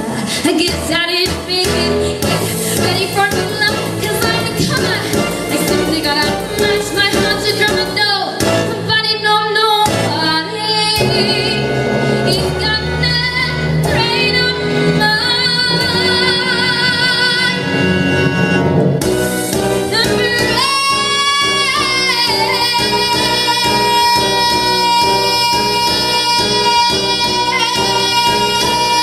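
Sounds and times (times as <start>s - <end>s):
instrumental accompaniment: 0.0s - 29.0s
woman singing a show tune: 2.8s - 11.7s, 19.9s - 29.0s.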